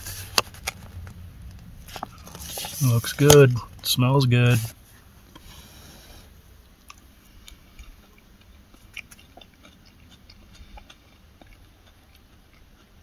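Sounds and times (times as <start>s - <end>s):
person chewing food: 4.9s - 13.0s.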